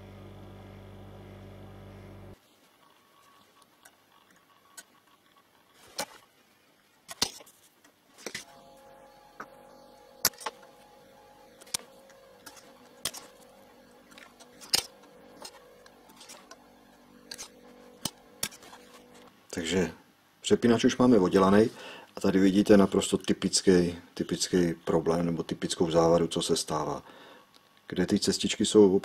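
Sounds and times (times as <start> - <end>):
faint steady hum: 0.0 - 29.0
hand tools clicking and snapping: 11.6 - 13.5, 14.1 - 16.6, 17.2 - 19.3.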